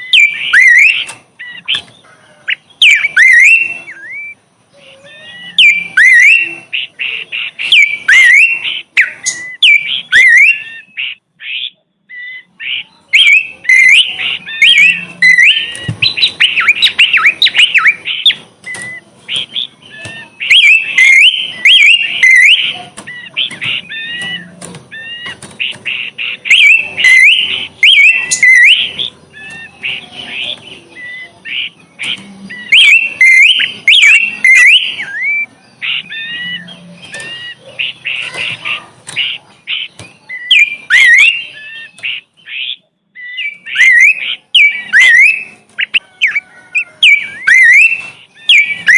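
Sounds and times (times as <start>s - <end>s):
songbird singing: 0.0s - 48.9s.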